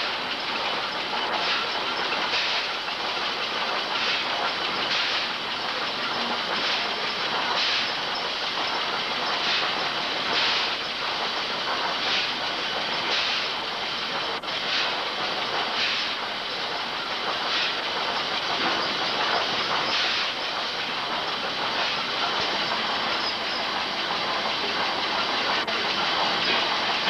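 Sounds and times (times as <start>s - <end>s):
machinery clattering: 0.0s - 27.0s
steam hissing: 0.0s - 27.0s
steam puffs: 6.2s - 27.0s.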